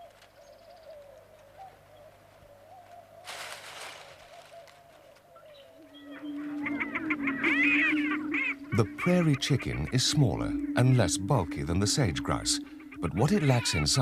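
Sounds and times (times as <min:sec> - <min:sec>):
faint wavering bird call: 0:00.0 - 0:14.0
low steady hoot: 0:04.2 - 0:14.0.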